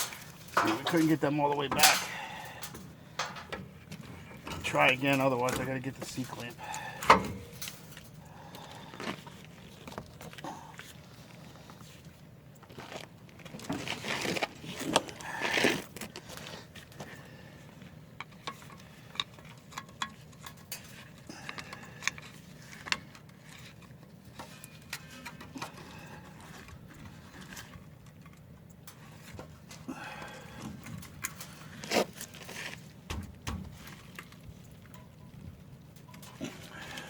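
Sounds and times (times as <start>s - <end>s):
hand tools scraping on metal: 0.0s - 3.6s.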